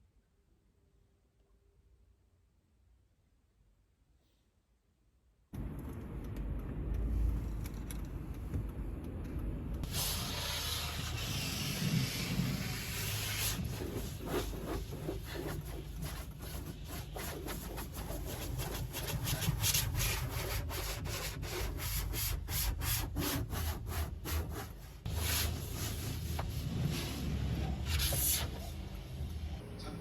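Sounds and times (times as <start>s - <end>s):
hand scrubbing a car: 9.8s - 28.8s.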